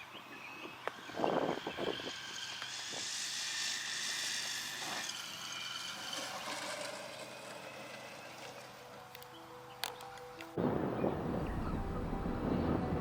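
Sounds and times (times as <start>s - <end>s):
model aeroplane flying past: 0.3s - 9.3s.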